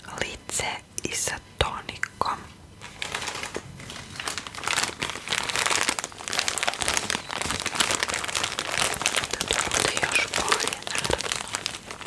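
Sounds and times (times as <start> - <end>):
crinkling and crumpling by hand: 2.8 - 12.0.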